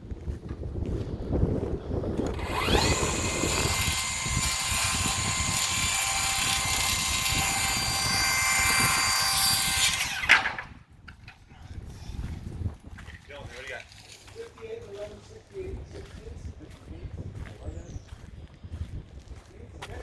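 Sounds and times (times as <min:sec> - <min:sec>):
wind on microphone: 0:00.0 - 0:20.0
machine motor whining: 0:02.2 - 0:10.6.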